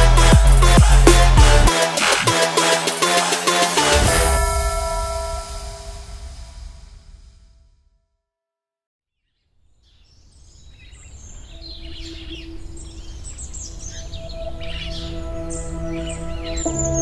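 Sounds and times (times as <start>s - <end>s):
birds chirping and trilling: 9.2s - 17.0s.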